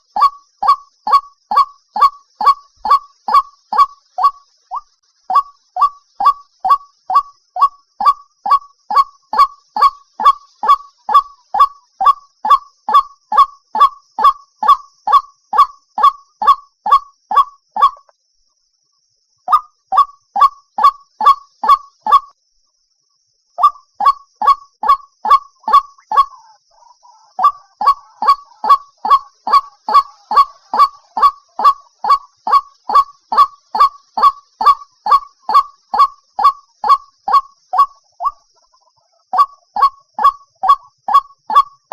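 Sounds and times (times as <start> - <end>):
faint steady high hiss: 0.0 - 16.3, 18.0 - 24.8.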